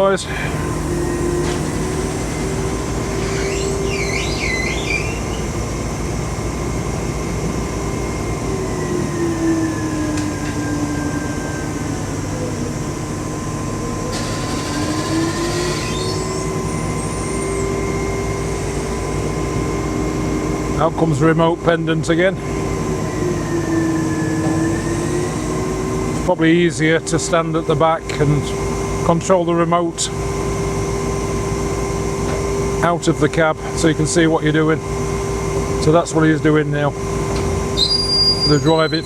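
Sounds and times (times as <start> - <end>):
crane engine and hydraulics whining: 0.0 - 39.0
short high squeaks: 3.0 - 5.6, 14.1 - 17.6, 37.8 - 39.0.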